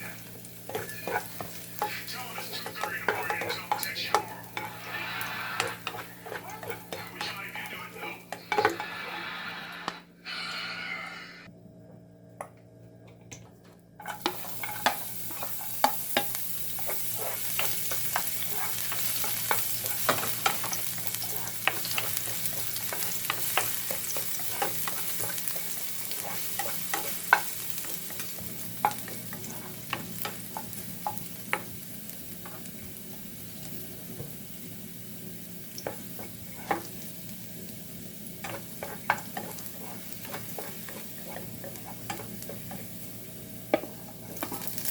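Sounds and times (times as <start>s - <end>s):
food sizzling in a pan: 0.0s - 11.5s, 14.0s - 44.9s
utensil scraping a pan: 0.7s - 7.4s, 14.0s - 31.2s, 38.4s - 43.0s.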